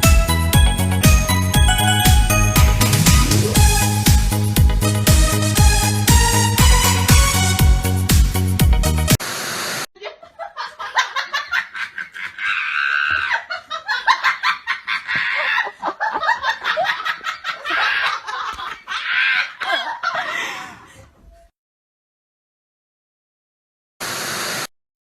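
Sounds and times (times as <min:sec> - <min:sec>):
hearty laughter: 0:10.0 - 0:21.2.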